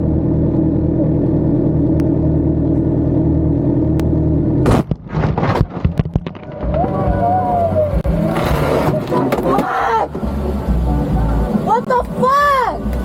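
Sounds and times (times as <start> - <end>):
vehicle engine running: 0.0 - 13.0
loud motorcycle crash: 4.6 - 7.4.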